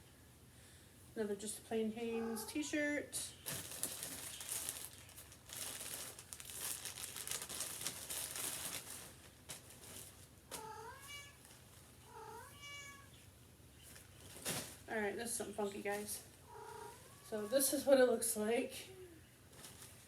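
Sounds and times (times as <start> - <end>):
cat meowing: 2.1 - 3.0, 10.6 - 11.4, 12.0 - 13.2, 16.4 - 17.7
clothing and plastic rustling: 3.2 - 12.0, 13.8 - 17.8, 19.4 - 20.0.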